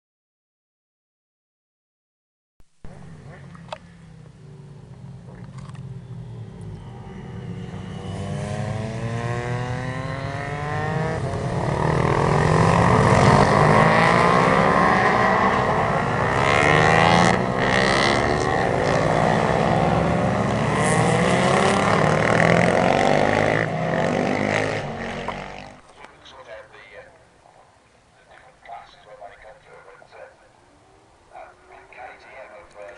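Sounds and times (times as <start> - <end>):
racing motorcycles passing: 2.9 - 26.8.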